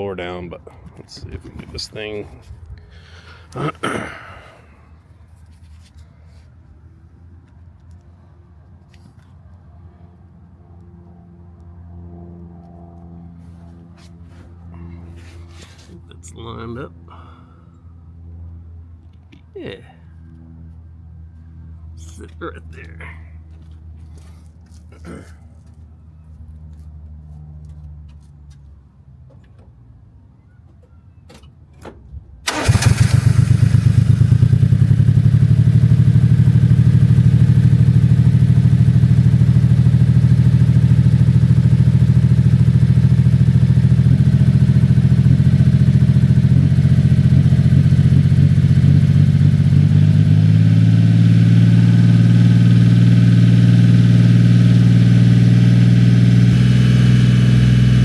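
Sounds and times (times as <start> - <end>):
engine starting and idling: 32.4 - 37.1.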